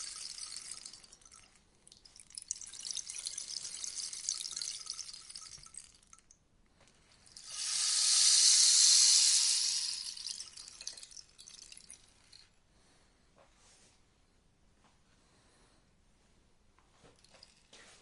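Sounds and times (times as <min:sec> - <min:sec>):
rainstick beads pattering: 0:02.1 - 0:06.2, 0:07.2 - 0:12.4.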